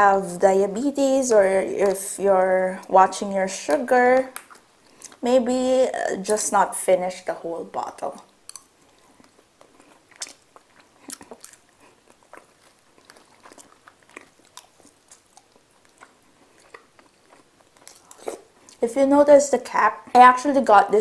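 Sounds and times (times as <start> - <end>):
person chewing food: 3.7 - 5.2, 8.2 - 18.8.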